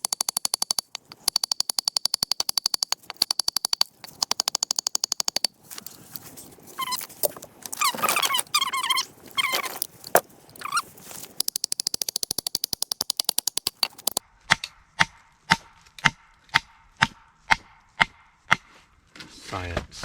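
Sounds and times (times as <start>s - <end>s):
rapid clicking rattle: 0.0s - 6.0s, 11.4s - 14.2s
squeaky whining sounds: 5.8s - 11.4s
hatchet knocking into firewood: 6.9s - 18.7s.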